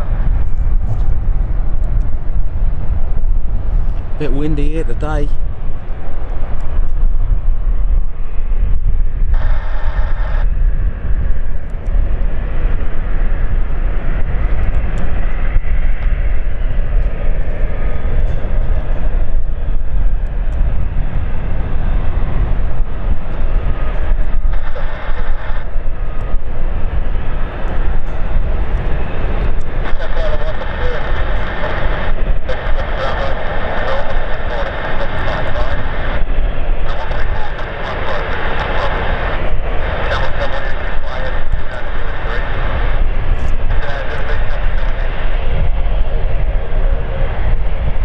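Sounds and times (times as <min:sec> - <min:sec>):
faint whine: 0:00.0 - 0:48.0
wind buffeting microphone: 0:00.0 - 0:48.0.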